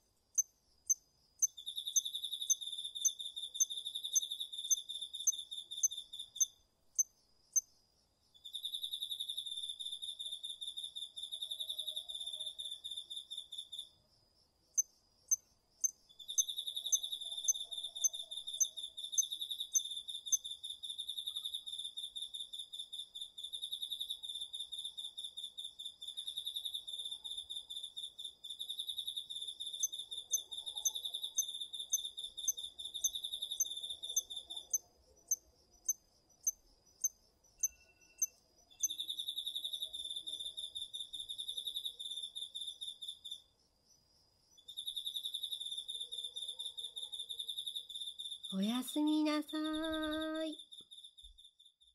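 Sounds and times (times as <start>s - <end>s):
insect sharp high chirps: 0.0s - 7.8s, 8.4s - 14.0s, 14.7s - 43.6s, 44.5s - 51.9s
crickets singing: 0.3s - 7.7s, 8.4s - 14.0s, 14.7s - 51.9s
insect high trill: 28.8s - 43.4s, 47.5s - 51.7s.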